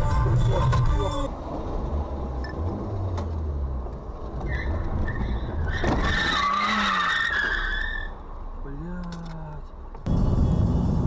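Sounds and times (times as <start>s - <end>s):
car rumbling on road: 0.0s - 11.0s
car tyres squealing: 4.3s - 8.2s.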